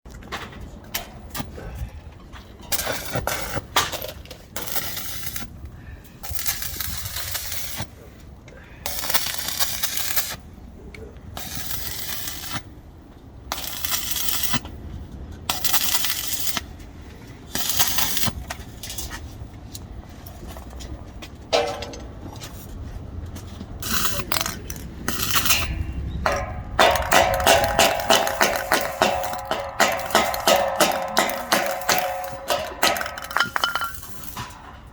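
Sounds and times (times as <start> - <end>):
welding arc crackling and hissing: 4.6 - 5.5, 6.2 - 7.9, 8.9 - 10.4, 11.4 - 12.7, 13.5 - 14.6, 15.5 - 16.7, 17.5 - 19.0, 23.8 - 34.6
quiet irregular noises: 10.4 - 13.9.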